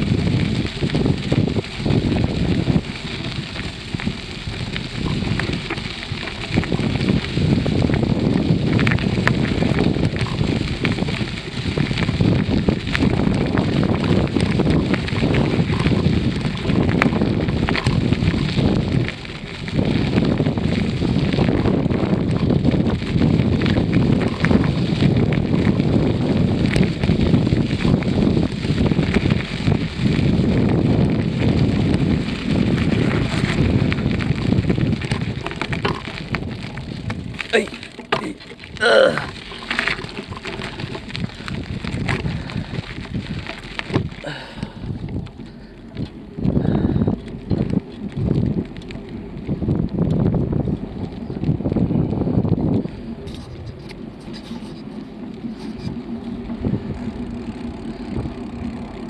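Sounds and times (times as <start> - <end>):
wind buffeting microphone: 0.0 - 59.0
clicks and rattles: 34.4 - 44.2.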